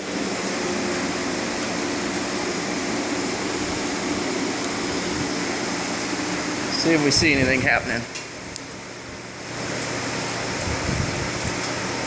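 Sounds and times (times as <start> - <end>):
furnace air rushing with hum: 0.0 - 12.0.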